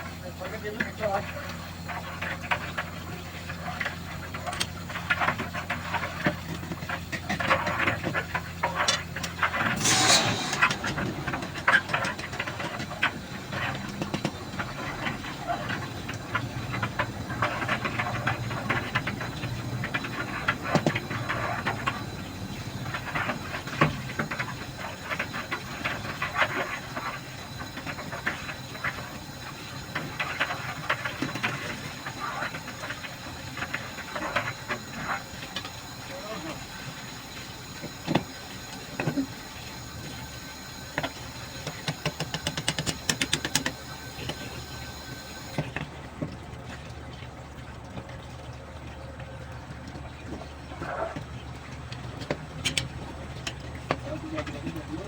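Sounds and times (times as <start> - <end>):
low steady hum: 7.6 - 55.0
brief loud hiss: 9.7 - 12.7
rushing water hissing: 9.7 - 45.6.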